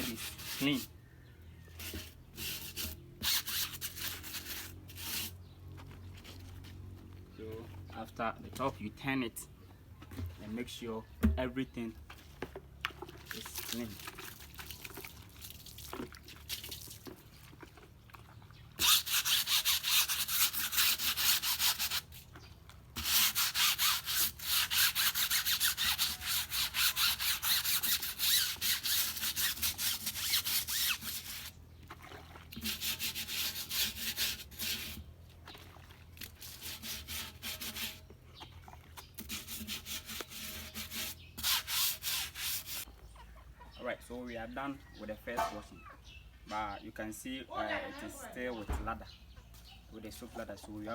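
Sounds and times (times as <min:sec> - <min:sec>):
scrubbing tyre in soapy water: 0:12.1 - 0:22.4.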